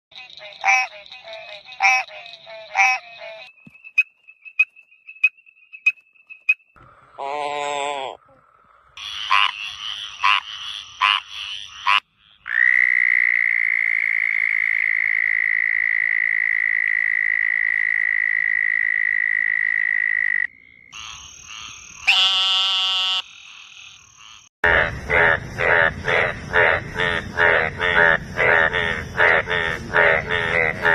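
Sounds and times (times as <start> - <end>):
frog croaks: 0.1 - 3.5, 5.7 - 30.9
high-pitched frog trill: 0.1 - 8.4, 9.0 - 30.9
loud fast pulsing frog call: 9.0 - 30.9
short pulsed frog call: 9.0 - 30.9.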